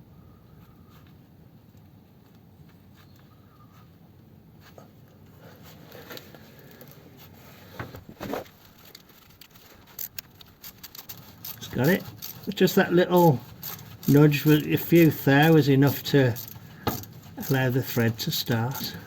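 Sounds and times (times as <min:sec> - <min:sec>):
faint metal clicks and scrapes: 0:04.6 - 0:19.0.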